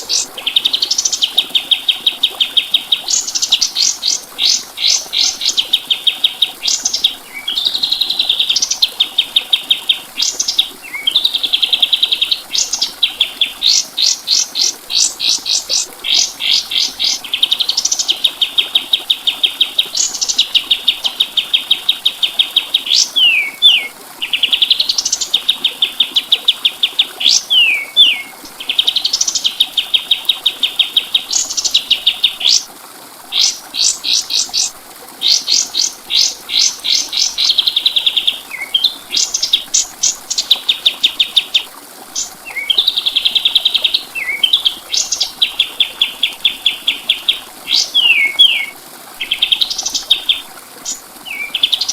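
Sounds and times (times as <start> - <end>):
songbird trilling: 22.4 - 32.6, 42.2 - 51.9.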